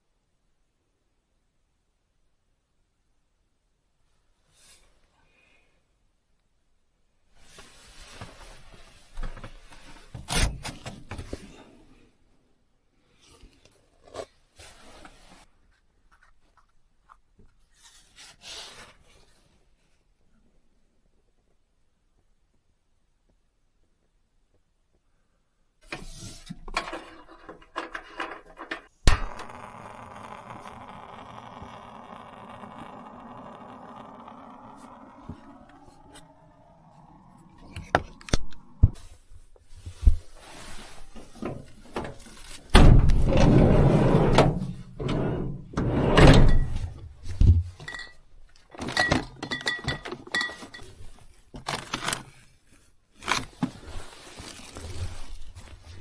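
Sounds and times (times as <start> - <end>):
objects knocking and clinking: 48.8 - 50.9.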